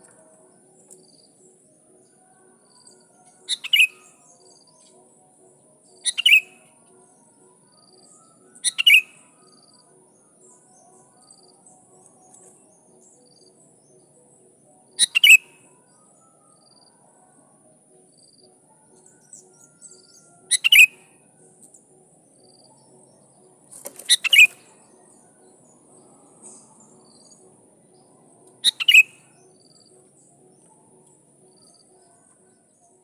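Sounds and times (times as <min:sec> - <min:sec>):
bulbul calling: 0:03.4 - 0:04.2, 0:06.0 - 0:06.7, 0:08.6 - 0:09.2, 0:15.0 - 0:15.6, 0:20.5 - 0:21.0, 0:23.8 - 0:24.8, 0:28.5 - 0:29.5.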